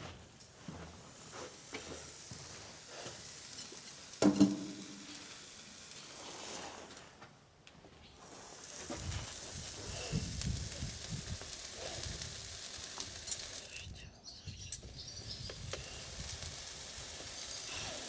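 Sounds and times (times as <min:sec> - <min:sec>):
hot horseshoe sizzling: 0:00.0 - 0:18.0
small clicks: 0:08.3 - 0:14.0.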